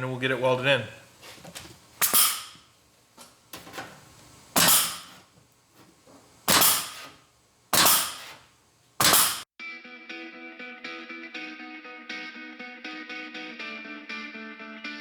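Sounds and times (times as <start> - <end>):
air hole punch punching steel: 2.0 - 2.7, 4.5 - 5.3, 6.4 - 9.5.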